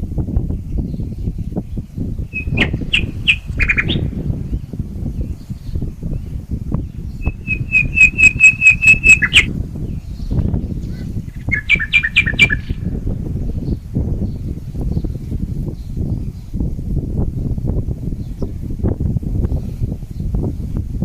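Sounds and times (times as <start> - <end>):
wind rumble on microphone: 0.0 - 21.0
two-part bird notes: 2.3 - 4.0, 7.2 - 9.5
birds calling high notes: 2.3 - 4.1, 7.2 - 9.5, 11.4 - 12.8.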